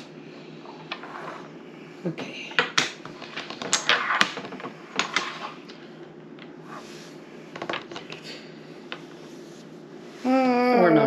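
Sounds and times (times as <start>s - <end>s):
domino tiles clicking: 2.6s - 5.8s.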